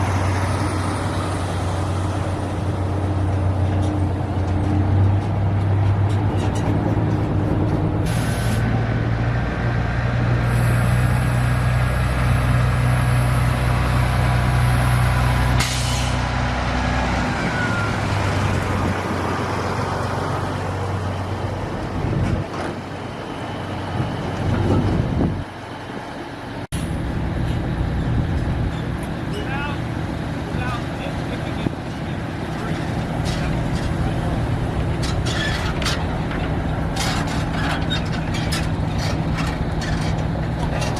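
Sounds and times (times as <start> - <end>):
truck engine running: 0.0 - 40.9
air brake hiss: 8.1 - 8.7, 15.6 - 16.2.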